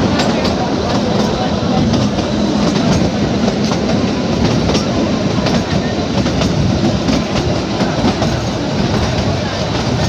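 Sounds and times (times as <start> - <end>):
rail joint clicks: 0.0 - 10.0
train wheels rumbling on rail: 0.0 - 10.0.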